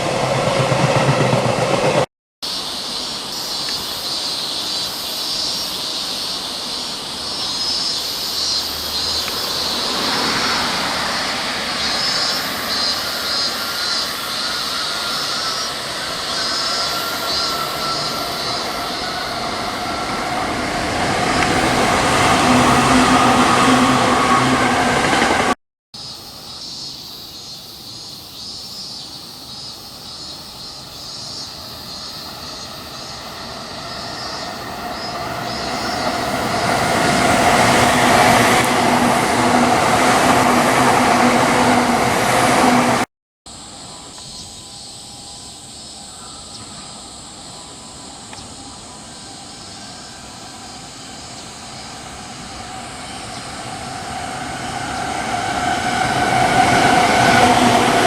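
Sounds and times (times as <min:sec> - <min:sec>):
electric train passing: 0:00.0 - 0:27.3, 0:29.3 - 0:58.0
rail noise: 0:00.0 - 0:58.0.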